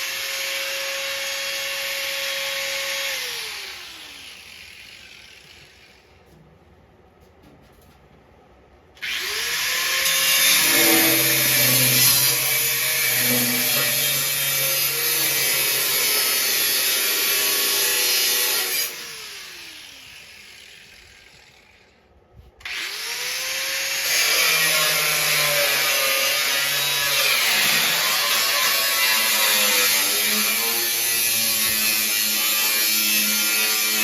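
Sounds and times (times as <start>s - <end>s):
grinder winding down whine: 9.0s - 17.5s
grinder spinning up whine: 9.0s - 21.8s
angle grinder cutting steel: 9.0s - 21.9s, 22.7s - 34.0s.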